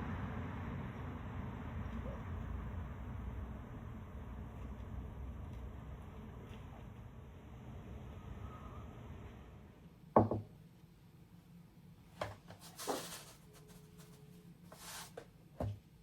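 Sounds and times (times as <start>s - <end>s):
short rustles: 12.2s - 15.3s.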